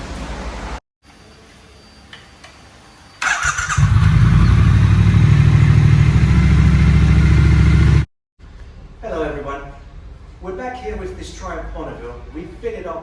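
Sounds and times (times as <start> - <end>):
motorcycle engine starting and running: 3.2 - 8.1.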